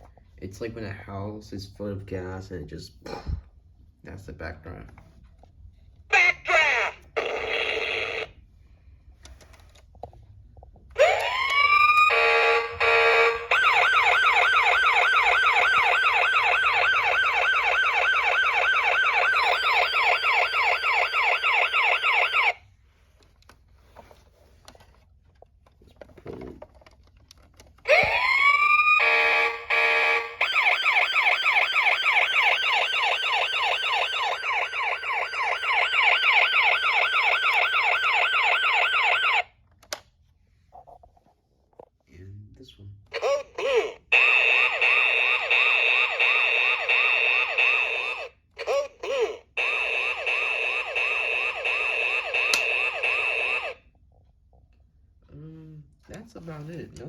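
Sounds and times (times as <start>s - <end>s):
toy siren wailing: 6.1s - 8.3s, 11.0s - 22.6s, 27.9s - 39.5s, 44.1s - 53.8s.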